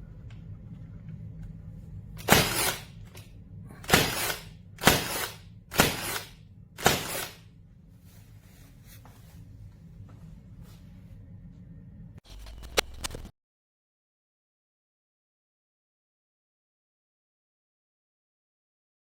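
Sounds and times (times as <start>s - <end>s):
nail gun firing: 2.2s - 3.2s, 3.8s - 7.4s.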